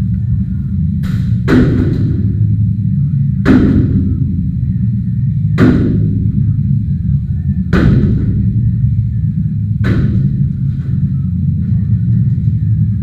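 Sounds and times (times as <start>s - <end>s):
steady low rumble: 0.0s - 13.0s
heavy smashing blows: 1.0s - 2.6s, 3.3s - 4.7s, 5.4s - 6.7s, 7.6s - 9.1s, 9.7s - 11.1s.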